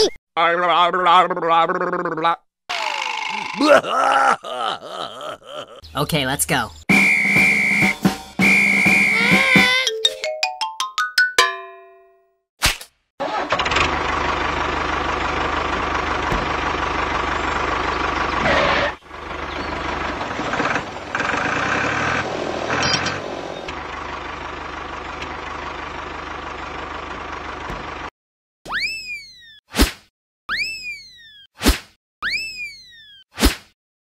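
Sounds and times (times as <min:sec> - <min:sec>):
engine running with low hum: 0:13.2 - 0:28.1.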